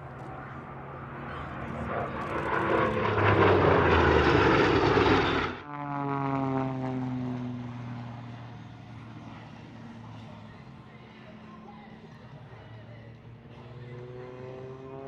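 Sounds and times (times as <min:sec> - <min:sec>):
aircraft roar: 0:00.0 - 0:15.0
propeller aircraft engine drone: 0:00.0 - 0:15.0.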